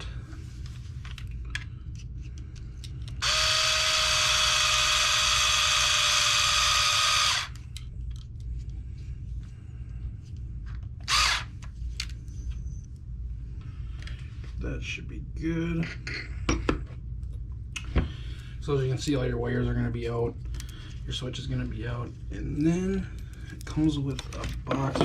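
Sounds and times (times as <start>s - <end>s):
electric screwdriver running: 3.2s - 7.6s, 11.0s - 11.5s.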